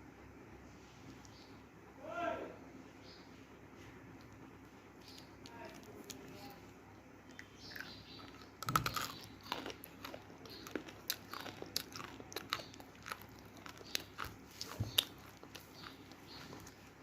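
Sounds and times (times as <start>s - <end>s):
person biting and chewing crunchy food: 7.3s - 17.0s.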